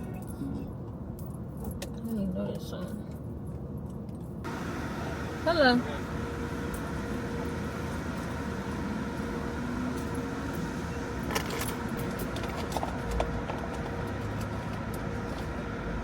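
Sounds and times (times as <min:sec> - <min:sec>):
car engine running: 0:04.4 - 0:16.0.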